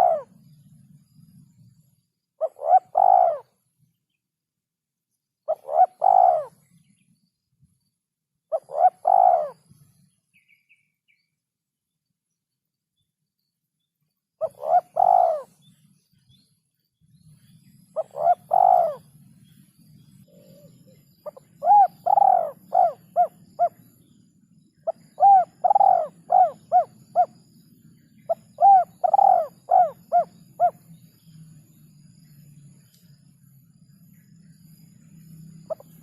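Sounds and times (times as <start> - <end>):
dove cooing: 0.0 - 0.4, 2.4 - 3.5, 5.5 - 6.6, 8.5 - 9.7, 14.4 - 15.6, 18.0 - 19.2, 20.2 - 23.9, 24.8 - 27.5, 28.2 - 30.8, 35.7 - 36.0
faint low hum: 0.0 - 36.0.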